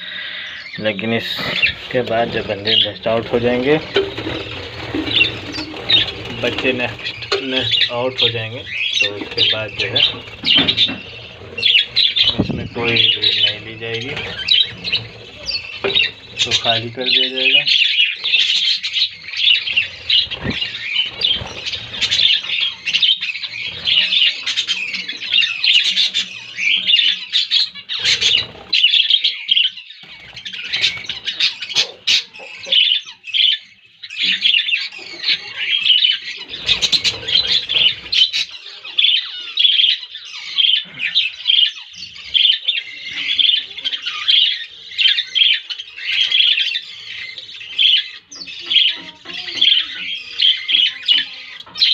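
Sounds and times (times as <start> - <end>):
budgerigars chattering: 0.0 - 51.9
rustling: 1.6 - 16.7.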